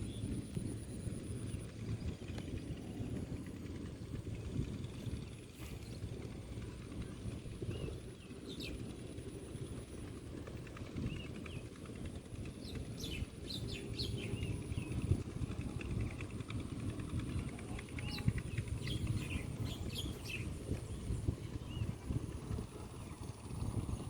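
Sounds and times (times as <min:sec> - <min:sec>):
birds chirping: 0:04.4 - 0:09.9, 0:10.9 - 0:24.0.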